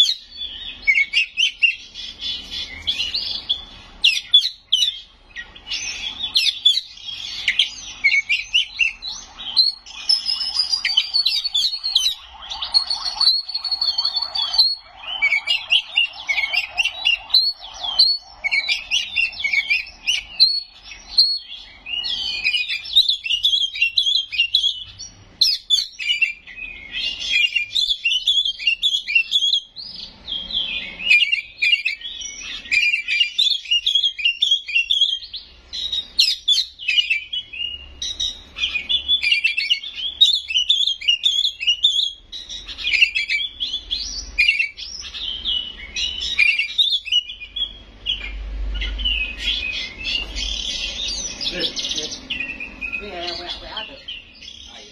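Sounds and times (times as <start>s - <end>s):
magpie-robin singing: 0.0s - 54.9s.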